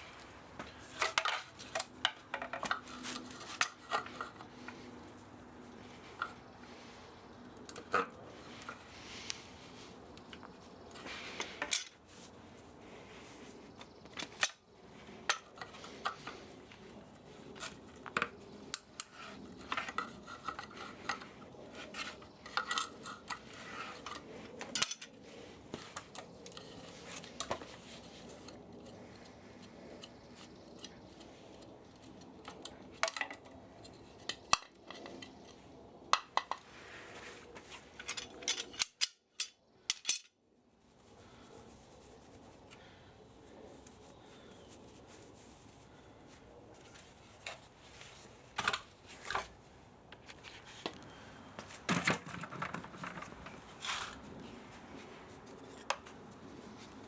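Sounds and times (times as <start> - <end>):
metal parts clinking: 38.0 - 40.4.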